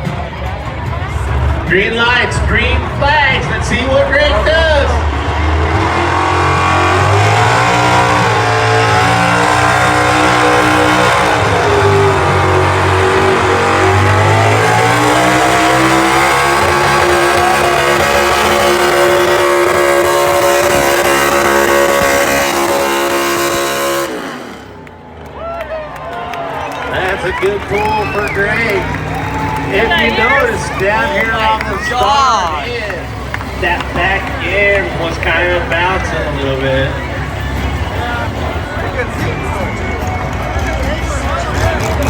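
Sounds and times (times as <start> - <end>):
truck engine running flat out: 0.0 - 42.0.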